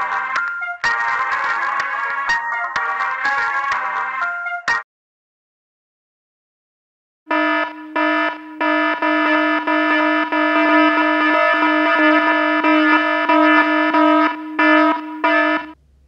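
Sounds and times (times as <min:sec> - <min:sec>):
buzzy electronic tone: 0:07.3 - 0:15.8.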